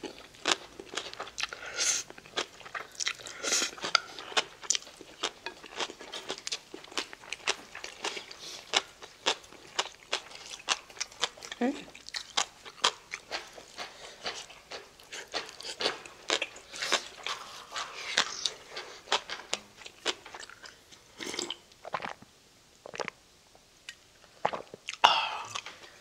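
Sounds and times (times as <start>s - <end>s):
chewing and biting food: 0.0s - 20.8s
mouth sound: 24.4s - 25.7s.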